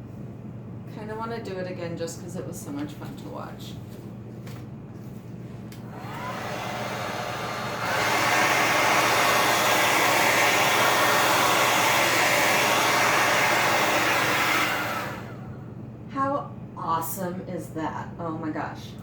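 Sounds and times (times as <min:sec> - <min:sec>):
hair dryer blowing: 0:05.7 - 0:15.7.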